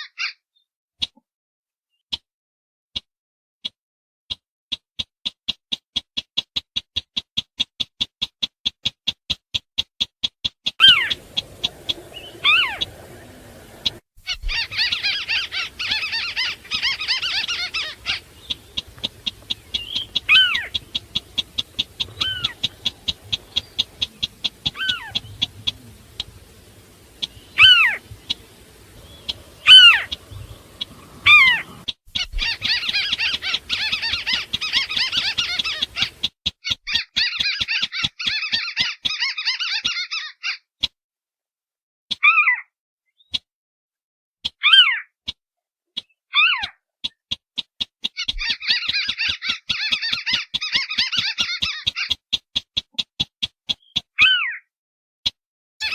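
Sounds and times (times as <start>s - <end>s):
fast series of bird ticks: 3.0s - 40.1s, 45.3s - 54.2s, 55.3s - 55.9s
dense bird chattering: 10.7s - 40.0s, 48.1s - 52.2s
downward-slurred bird calls: 10.7s - 40.6s, 48.1s - 52.2s.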